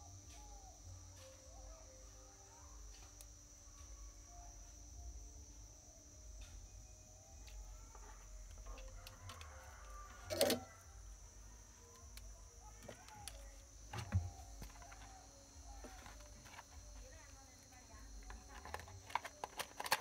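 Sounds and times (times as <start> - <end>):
faint chirps: 0.0 - 18.6
low steady hum: 0.0 - 20.0
parts knocking on workbench: 13.9 - 14.9.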